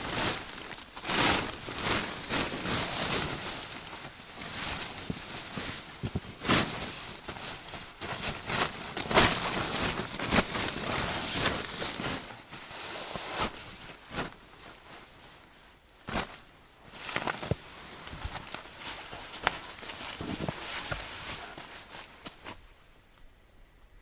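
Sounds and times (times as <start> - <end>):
footsteps crunching in snow: 0.0 - 22.6.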